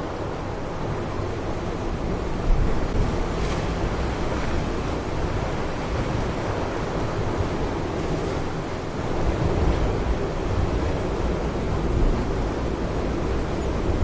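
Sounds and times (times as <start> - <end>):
surf washing against shore: 0.0 - 1.3
wind buffeting microphone: 0.0 - 1.3.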